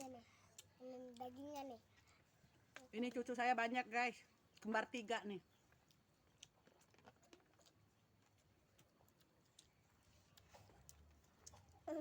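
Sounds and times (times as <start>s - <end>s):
faint small clicks and taps: 2.0s - 3.4s.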